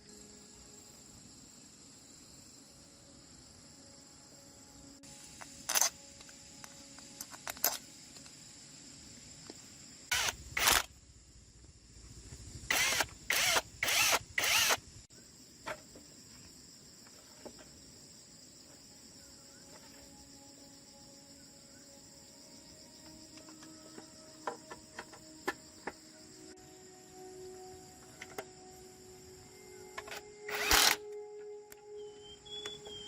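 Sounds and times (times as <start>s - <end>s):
crickets chirring: 0.0s - 33.0s.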